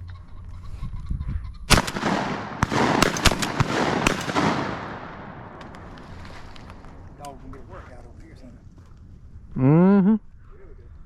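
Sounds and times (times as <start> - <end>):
shotgun shots echoing: 1.7 - 7.2.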